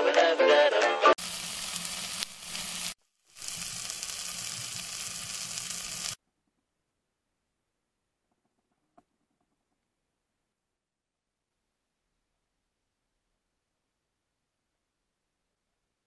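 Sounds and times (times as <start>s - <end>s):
meat sizzling in a wok: 1.2s - 6.2s.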